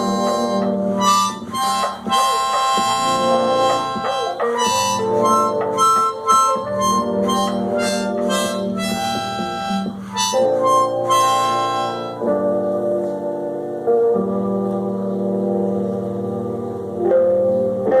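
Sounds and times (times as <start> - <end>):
harmonica playing chords: 0.0 - 18.0.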